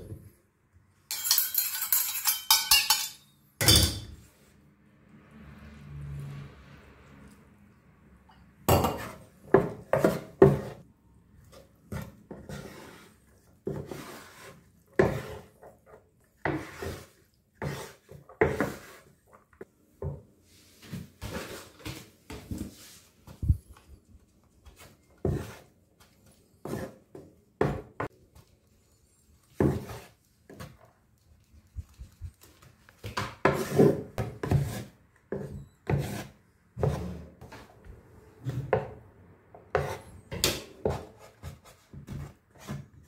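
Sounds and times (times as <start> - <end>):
wooden paddle scraping rice: 12.0 - 19.2, 20.4 - 23.5, 24.7 - 25.8, 29.5 - 30.8, 33.4 - 37.8.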